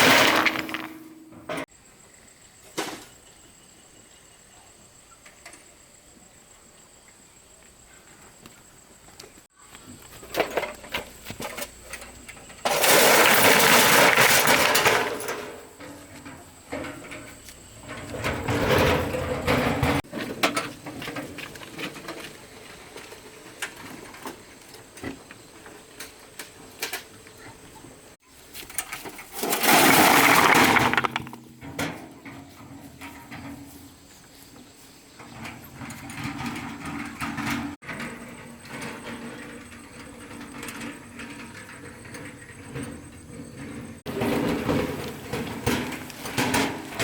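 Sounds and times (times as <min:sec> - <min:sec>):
rushing clatter of tipped stones: 0:00.0 - 0:01.1, 0:12.7 - 0:15.3, 0:29.2 - 0:31.5
stones knocking and clattering: 0:00.0 - 0:01.2, 0:29.4 - 0:31.6.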